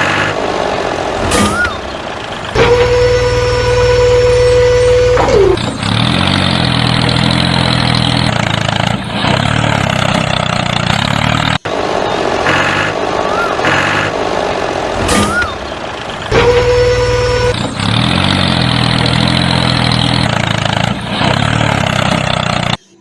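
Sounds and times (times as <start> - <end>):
truck engine running: 0.0 - 23.0
horn sounding: 2.5 - 6.7, 16.2 - 20.2.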